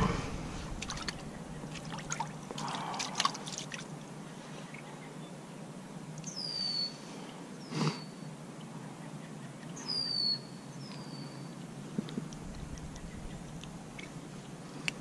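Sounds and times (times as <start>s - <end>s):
small bird whistling: 6.3s - 7.0s, 9.9s - 11.3s.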